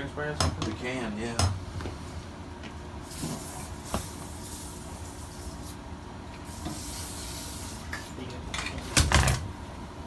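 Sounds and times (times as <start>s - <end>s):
aerosol can spraying hiss: 3.0s - 5.8s.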